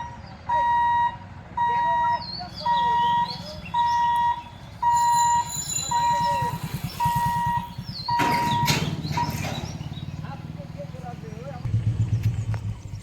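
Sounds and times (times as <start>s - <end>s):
level crossing alarm beeping: 0.0s - 10.0s
train rumbling: 2.2s - 13.0s.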